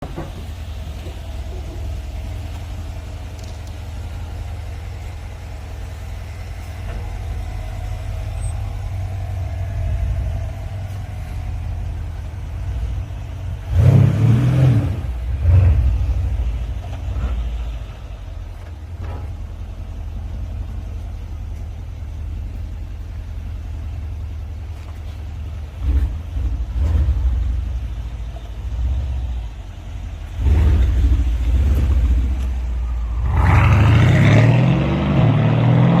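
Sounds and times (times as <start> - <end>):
car exhaust drone and revving: 0.0 - 36.0.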